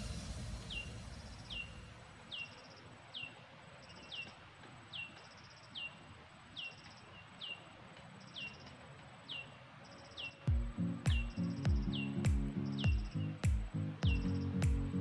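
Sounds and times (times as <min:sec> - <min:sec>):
bird whistled falling call: 0:00.6 - 0:02.6
buzzy bird chirp: 0:00.6 - 0:08.7, 0:09.3 - 0:15.0.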